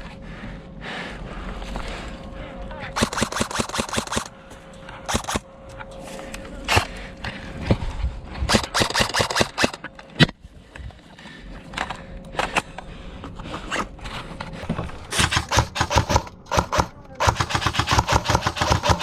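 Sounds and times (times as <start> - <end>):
airsoft guns firing: 3.0 - 4.3, 5.1 - 5.4, 8.5 - 9.8, 15.1 - 19.0.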